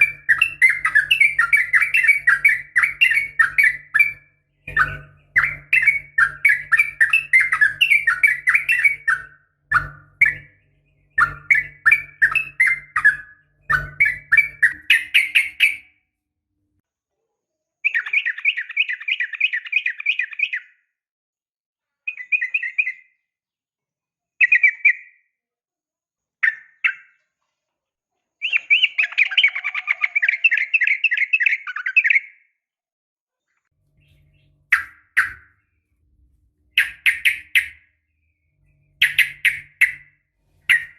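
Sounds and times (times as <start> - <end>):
bird chattering calls: 11.1 - 15.8, 34.0 - 35.6, 36.7 - 37.8, 39.0 - 40.9
low hum: 33.8 - 40.9.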